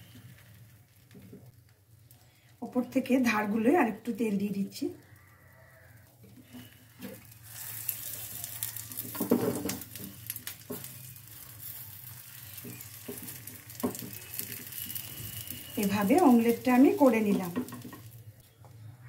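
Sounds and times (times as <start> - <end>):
egg sizzling in oil: 0.0 - 18.5
spatula scraping a pan: 6.0 - 18.1.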